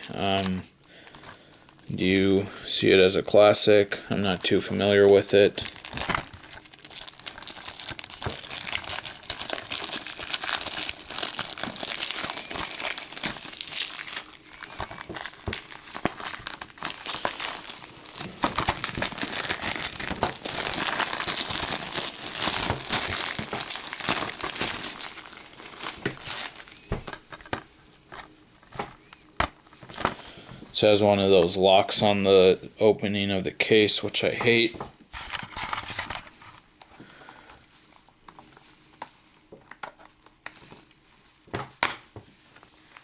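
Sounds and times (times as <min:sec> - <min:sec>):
plastic wrap crinkling: 0:00.0 - 0:30.4.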